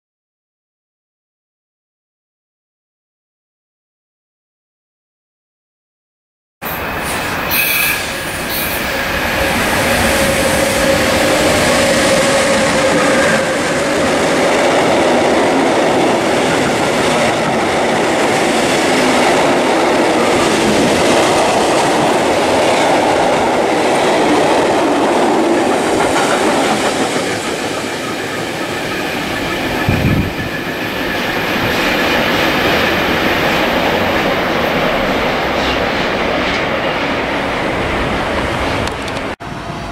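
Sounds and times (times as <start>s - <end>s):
train wheels rolling on rails: 6.7s - 39.9s.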